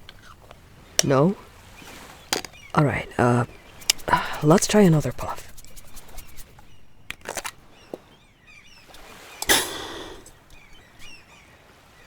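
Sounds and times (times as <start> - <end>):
faint bird chirps: 7.7 - 12.0
inhaler clicks: 9.4 - 10.4
inhaler spray hiss: 9.4 - 10.4.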